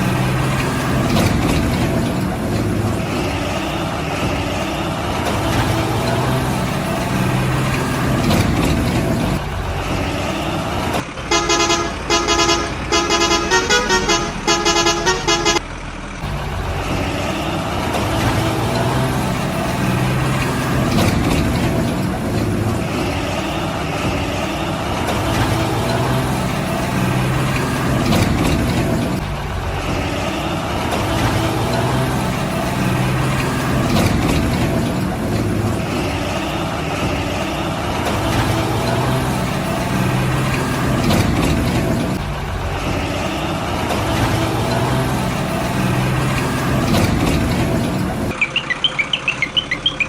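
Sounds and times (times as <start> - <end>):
truck engine running: 0.0 - 50.0
horn short blasts: 11.3 - 15.6.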